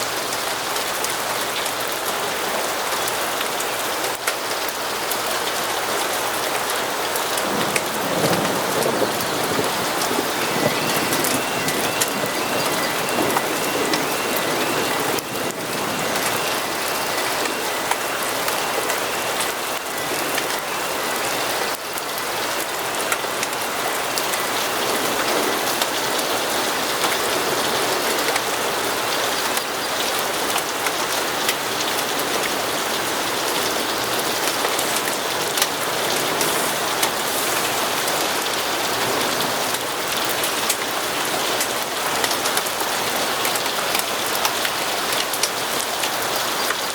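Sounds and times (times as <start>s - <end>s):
steady rain: 0.0s - 46.9s
raindrop ticks: 0.1s - 46.9s.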